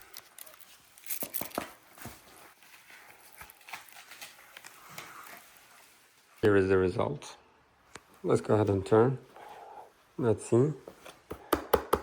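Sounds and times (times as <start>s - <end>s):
plastic knee pads rustling and knocking: 1.2s - 5.7s.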